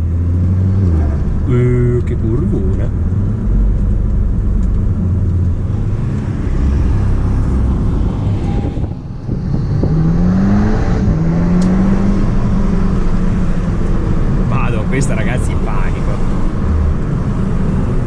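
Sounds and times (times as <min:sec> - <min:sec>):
car engine under load: 0:00.0 - 0:18.0.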